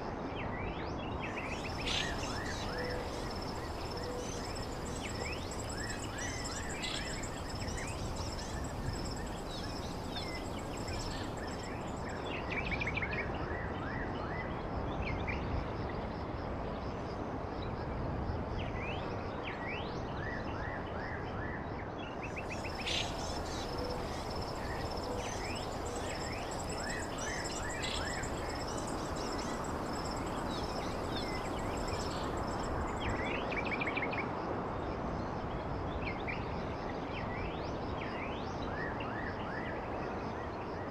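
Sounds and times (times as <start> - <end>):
insect trill: 1.3 - 12.9, 22.3 - 34.0
bird chirps: 22.5 - 33.2.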